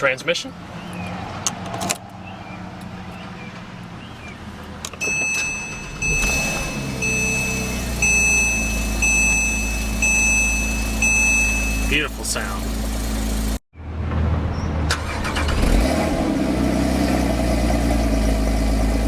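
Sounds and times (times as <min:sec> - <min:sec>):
car engine idling: 0:02.0 - 0:13.6, 0:16.1 - 0:19.0
high electronic beep: 0:05.0 - 0:12.2.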